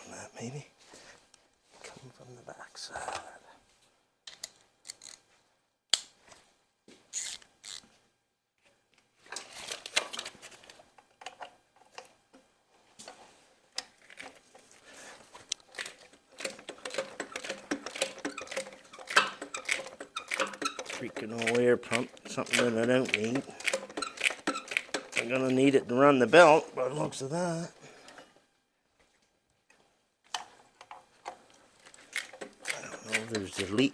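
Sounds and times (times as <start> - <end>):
hand tools clicking on metal: 15.5 - 25.8, 31.9 - 33.9.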